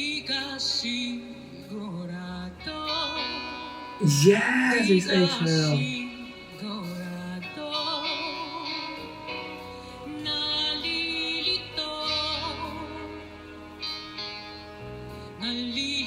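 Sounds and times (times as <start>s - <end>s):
woman singing a slow ballad: 0.4s - 9.0s.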